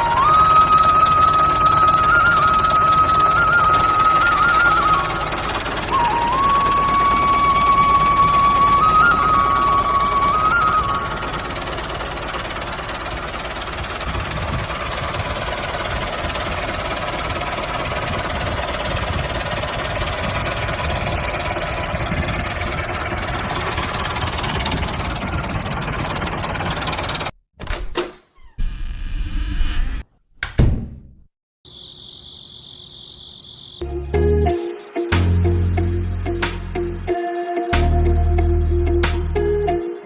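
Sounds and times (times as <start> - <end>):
mini tractor engine drone: 0.0 - 27.3.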